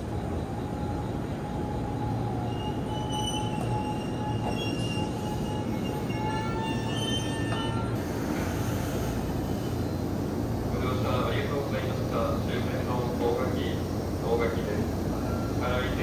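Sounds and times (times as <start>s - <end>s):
electric train rumbling: 0.0s - 16.0s
high brake squealing: 2.4s - 10.1s.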